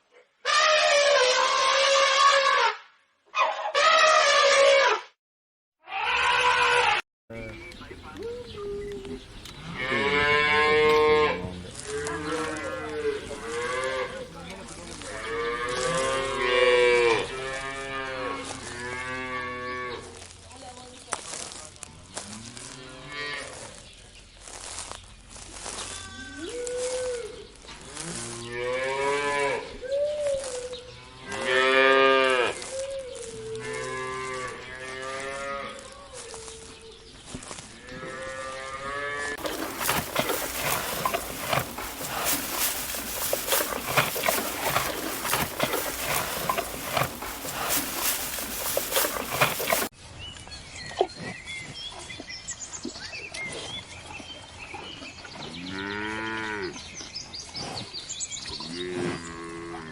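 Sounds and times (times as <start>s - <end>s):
cattle mooing: 9.6s - 17.2s, 39.4s - 49.9s
rough crackling noise: 39.4s - 49.9s.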